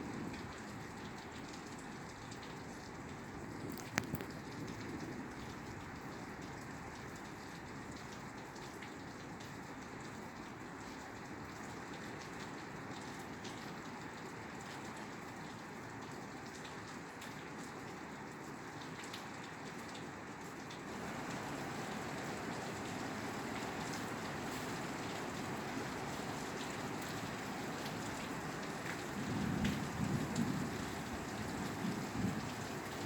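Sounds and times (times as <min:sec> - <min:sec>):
rain on a roof: 0:00.0 - 0:33.0.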